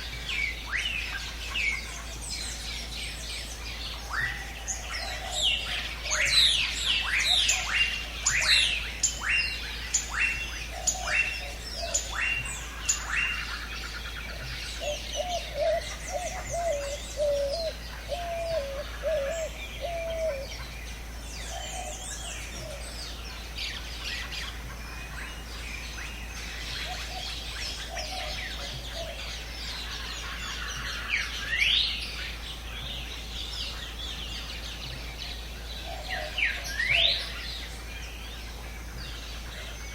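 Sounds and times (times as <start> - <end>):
high bird chirping: 0.0 - 39.9
low warbling bird call: 0.0 - 39.9.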